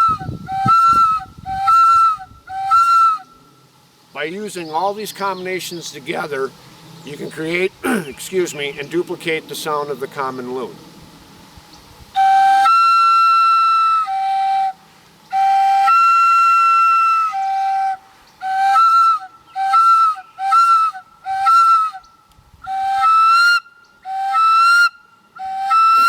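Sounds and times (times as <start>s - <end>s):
loon call wails: 22.8s - 26.0s.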